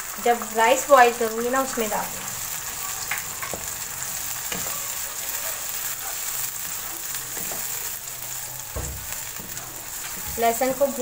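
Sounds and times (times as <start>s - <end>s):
masala sizzling in oil: 0.0s - 11.0s
wooden spatula stirring: 6.8s - 11.0s.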